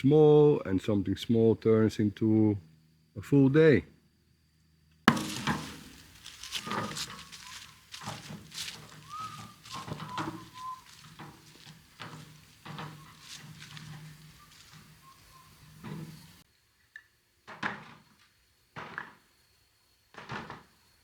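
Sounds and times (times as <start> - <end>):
garden work knocks and thunks: 5.1 - 16.4.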